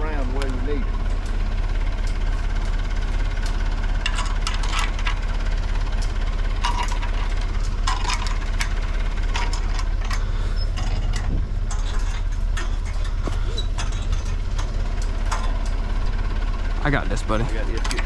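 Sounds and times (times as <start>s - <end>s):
diesel engine idling: 0.0s - 18.0s
metal tool clinks and clanks: 4.0s - 5.2s, 6.6s - 15.8s.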